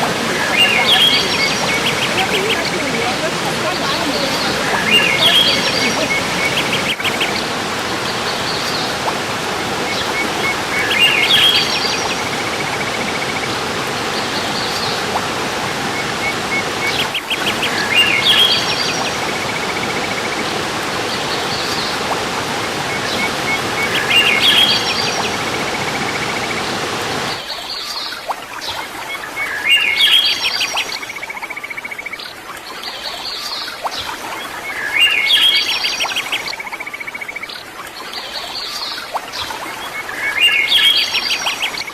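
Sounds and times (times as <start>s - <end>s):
waterfall rushing: 0.0s - 27.5s
songbird singing: 0.0s - 28.0s, 29.4s - 32.2s, 32.9s - 37.5s, 38.1s - 41.9s.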